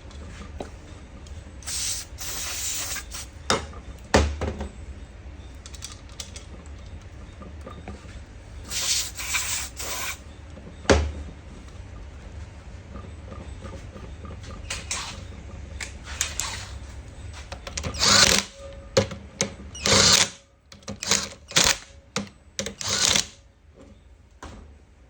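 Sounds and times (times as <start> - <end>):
air hissing bursts: 1.6 - 3.4, 8.7 - 10.2.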